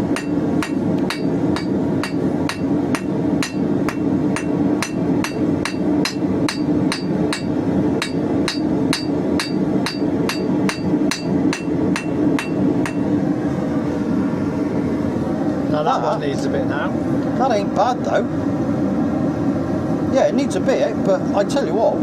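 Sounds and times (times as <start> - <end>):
gas burner roaring: 0.0 - 22.0
hammer striking steel on anvil: 0.1 - 13.2.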